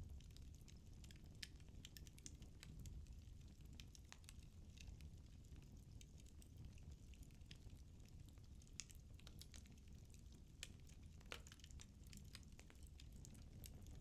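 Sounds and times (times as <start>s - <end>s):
firewood crackling and popping: 0.0s - 14.0s
low rumble of flames: 0.0s - 14.0s.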